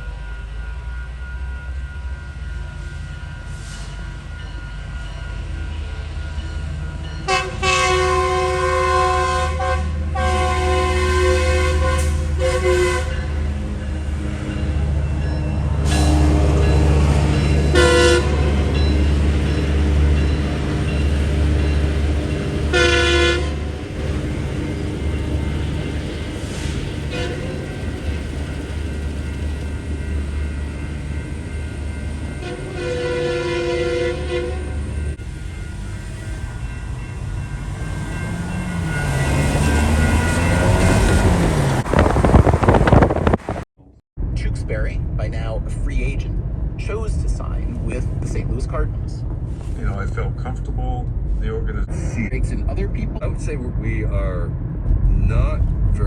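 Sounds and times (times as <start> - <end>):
diesel locomotive rumbling: 0.0 - 56.0
train air horn blasts: 7.3 - 13.7, 15.8 - 19.3, 21.3 - 28.2, 32.0 - 35.1.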